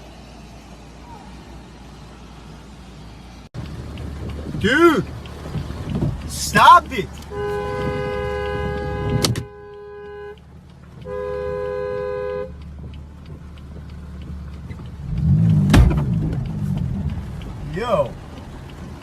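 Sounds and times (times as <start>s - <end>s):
car horn dual-tone blasts: 6.5s - 10.4s, 11.0s - 12.6s.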